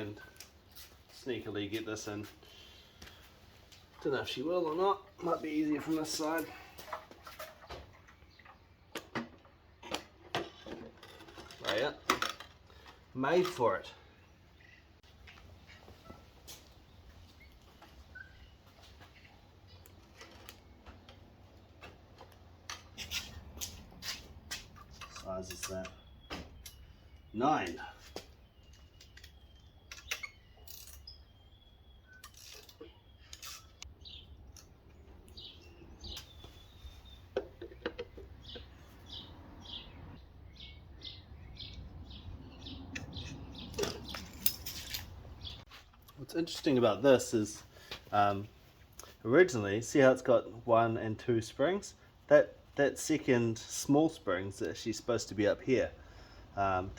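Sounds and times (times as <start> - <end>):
small bird chirping: 25.2 - 45.7
hand tools clinking: 43.7 - 45.2.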